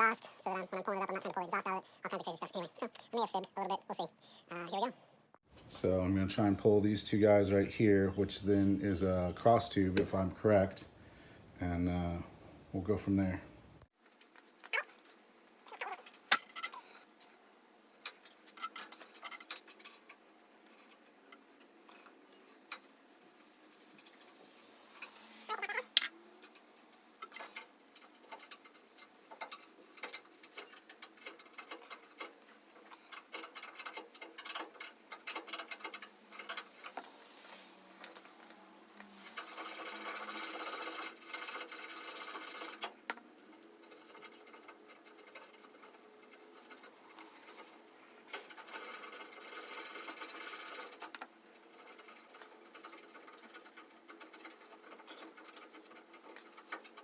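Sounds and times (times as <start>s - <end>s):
power ratchet spinning: 39.2s - 42.9s.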